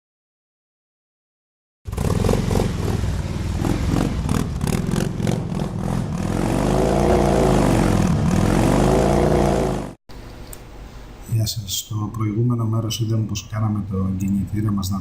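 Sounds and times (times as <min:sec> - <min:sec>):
motorcycle engine revving: 0:01.9 - 0:10.0.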